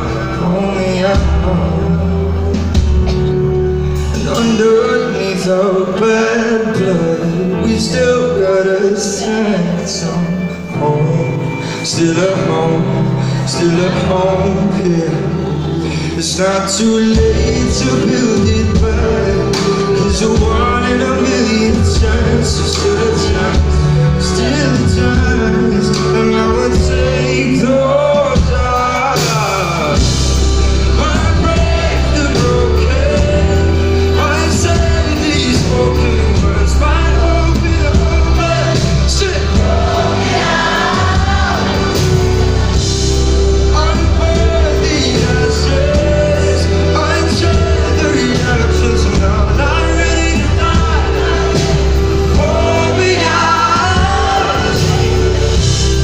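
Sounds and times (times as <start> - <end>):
live band music: 0.0 - 56.0
person singing: 0.0 - 56.0
heavy bass line: 11.4 - 56.0.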